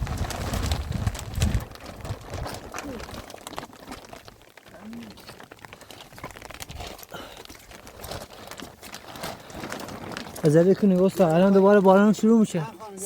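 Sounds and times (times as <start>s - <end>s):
rustling: 0.0s - 13.0s.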